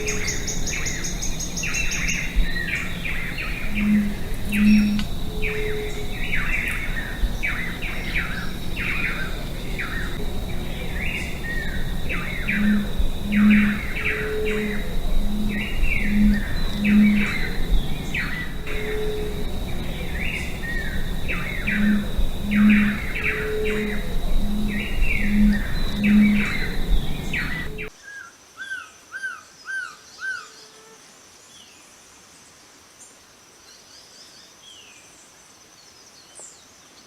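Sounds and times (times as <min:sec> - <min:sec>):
low hoots: 0:00.0 - 0:27.9
steady high tone: 0:00.0 - 0:27.9
birds chirping: 0:00.0 - 0:28.0.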